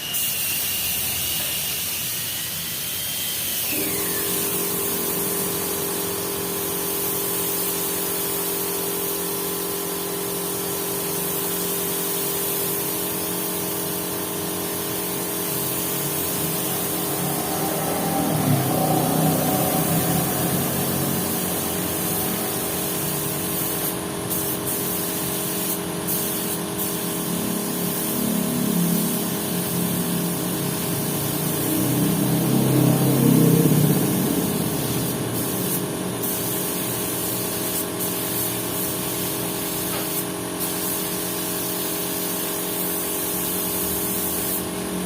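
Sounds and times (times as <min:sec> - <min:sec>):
machine hum: 0:16.5 - 0:23.0.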